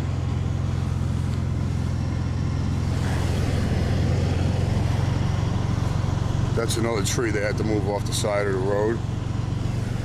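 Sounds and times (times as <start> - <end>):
truck engine driving: 0.0 - 10.0.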